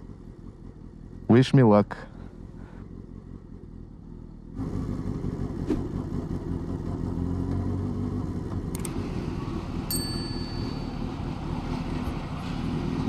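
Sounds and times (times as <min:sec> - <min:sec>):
motorcycle engine running: 0:00.0 - 0:13.0
click: 0:08.7 - 0:09.0.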